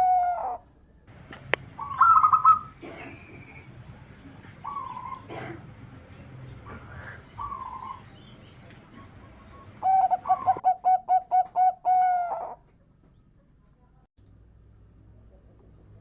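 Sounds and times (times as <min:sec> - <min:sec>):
dove cooing: 0:00.0 - 0:00.6, 0:01.3 - 0:12.6.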